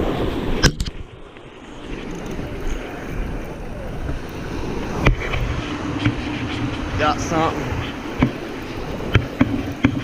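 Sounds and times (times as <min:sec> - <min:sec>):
surf: 0:00.0 - 0:10.0
wind buffeting microphone: 0:00.0 - 0:10.0.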